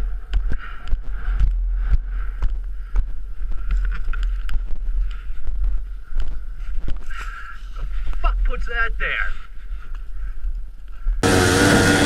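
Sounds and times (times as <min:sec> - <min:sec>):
steady whine: 0:11.2 - 0:12.0.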